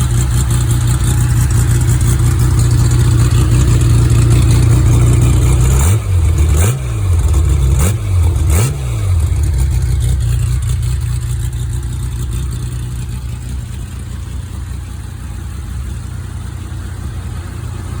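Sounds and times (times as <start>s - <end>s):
engine idling and revving: 0.0s - 18.0s.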